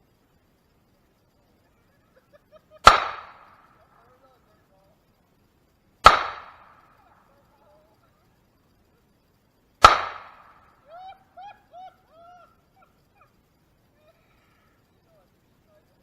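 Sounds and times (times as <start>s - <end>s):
pistol shots: 2.8s - 3.7s, 6.0s - 7.0s, 9.8s - 10.7s.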